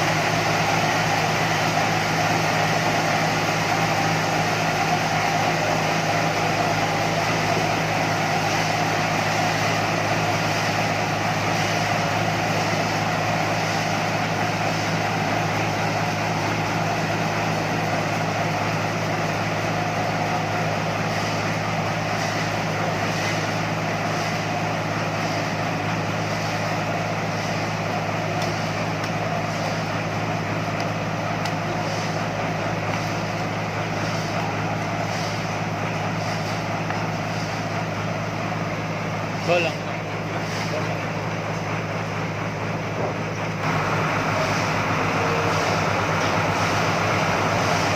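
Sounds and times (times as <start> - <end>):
sawmill machinery drone and whine: 0.0 - 47.9.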